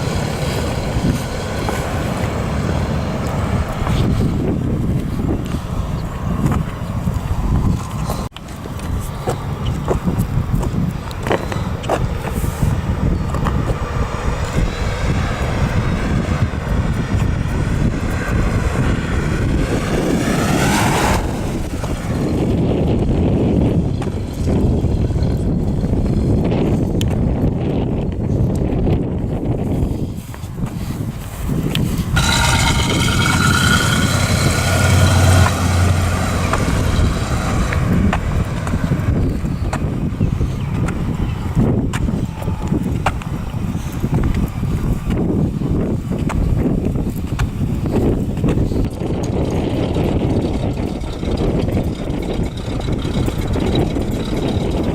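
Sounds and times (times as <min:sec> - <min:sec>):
car engine running: 0:00.0 - 0:09.6, 0:32.2 - 0:40.1, 0:49.4 - 0:54.9
car engine rumbling: 0:00.0 - 0:54.9
high whine: 0:32.0 - 0:39.7.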